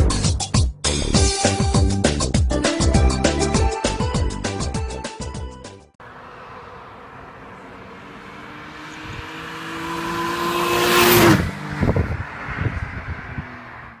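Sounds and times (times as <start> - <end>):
car engine accelerating: 6.0 - 14.0.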